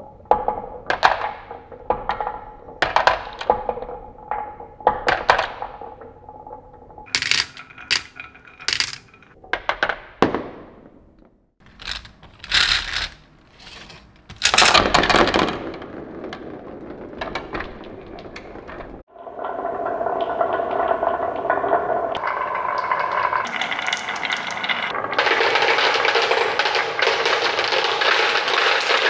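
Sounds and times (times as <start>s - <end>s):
marbles rolling along track: 7.1s - 9.3s, 11.6s - 15.8s, 23.3s - 28.5s
glass marbles clacking: 7.1s - 9.4s, 11.6s - 15.0s.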